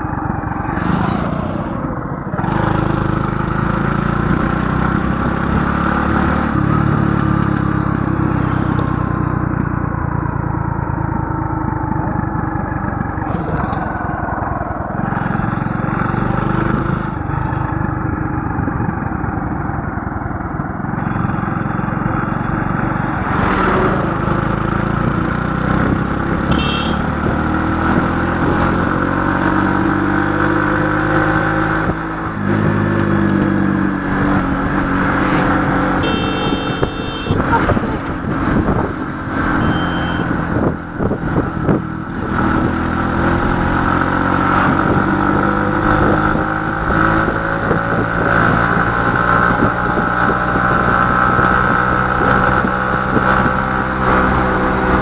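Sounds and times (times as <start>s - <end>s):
vehicle engine running: 32.3s - 41.9s.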